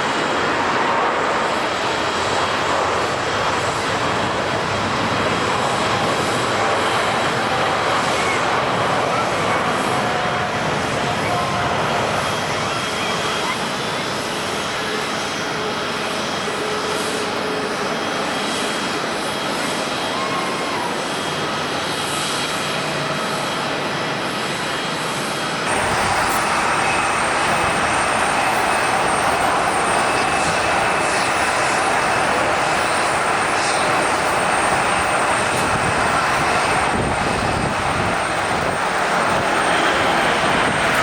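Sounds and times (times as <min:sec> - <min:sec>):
jet engines whining: 0:00.0 - 0:41.0.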